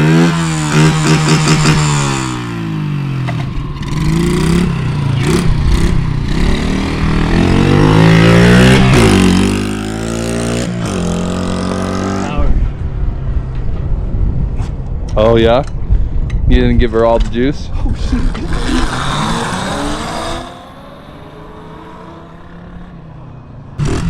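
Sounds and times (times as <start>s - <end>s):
mini bike engine revving: 0.0s - 12.3s, 18.0s - 23.0s, 23.8s - 24.0s.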